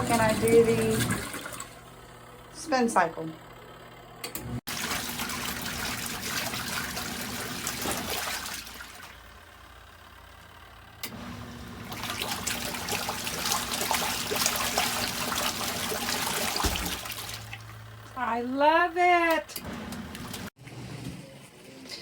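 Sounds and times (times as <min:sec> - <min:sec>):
washing machine motor hum: 0:00.0 - 0:22.0
water sloshing: 0:04.7 - 0:09.2, 0:11.8 - 0:18.1.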